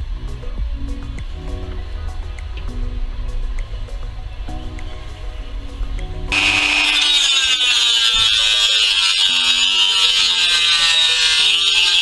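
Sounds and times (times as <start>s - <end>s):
quiet background music: 0.0s - 12.0s
high-pitched power tool running: 6.3s - 12.0s.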